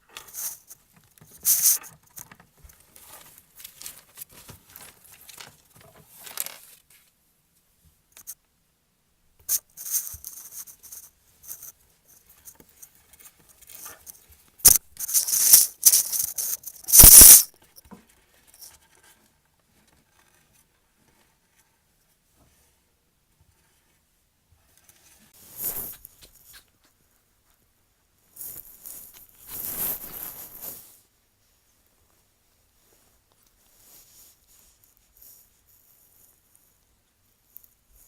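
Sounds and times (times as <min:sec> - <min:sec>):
ferret scratching and rustling: 0:15.0 - 0:17.1.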